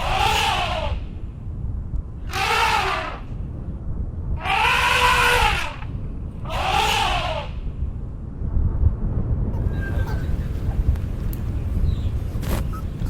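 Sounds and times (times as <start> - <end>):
steady low rumble: 0.0 - 13.0
goat bleating loudly: 4.5 - 5.6.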